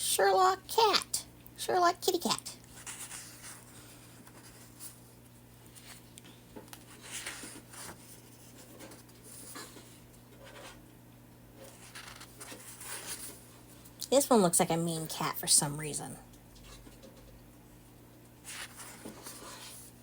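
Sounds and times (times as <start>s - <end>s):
paper pages turning: 6.7s - 10.8s, 11.6s - 13.4s, 18.4s - 20.0s.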